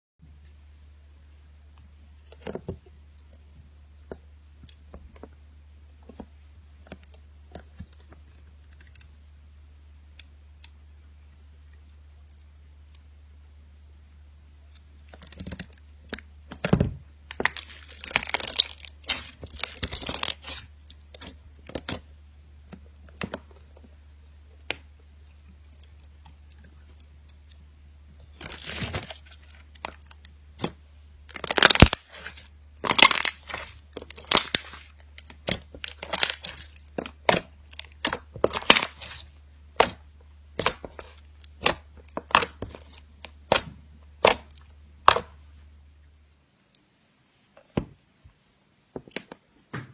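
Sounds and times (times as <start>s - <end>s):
slime crackling and popping: 17.3s - 22.0s, 28.2s - 45.4s.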